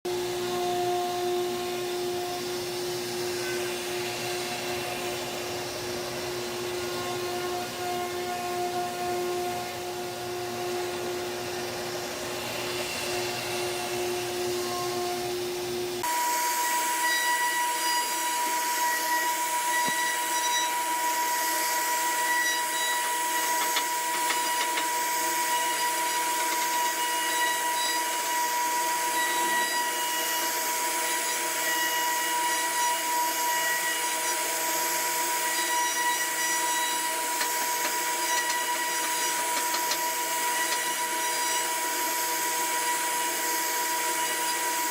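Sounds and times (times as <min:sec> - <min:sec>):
router spindle whining while carving wood: 0:00.1 - 0:44.9.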